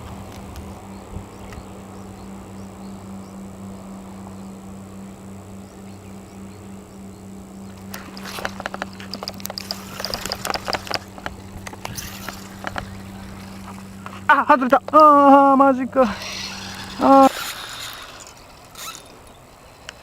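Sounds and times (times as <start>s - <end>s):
steady low hum: 0.0s - 20.0s
fishing reel clicking: 7.7s - 15.0s, 16.0s - 20.0s.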